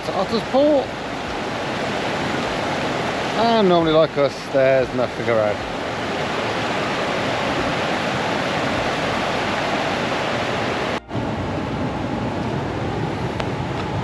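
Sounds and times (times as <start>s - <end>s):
river water rushing over rocks: 0.0s - 14.0s.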